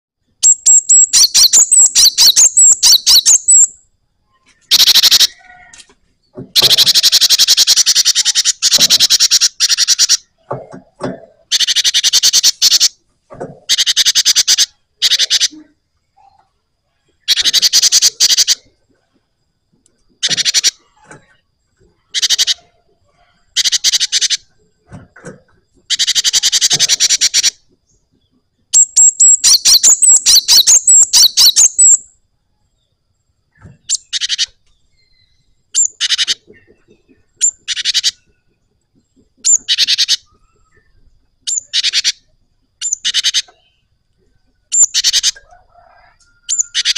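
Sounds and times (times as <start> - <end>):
bird singing rolling trills: 0.2 - 10.5, 11.4 - 13.0, 13.7 - 24.9, 25.6 - 46.9.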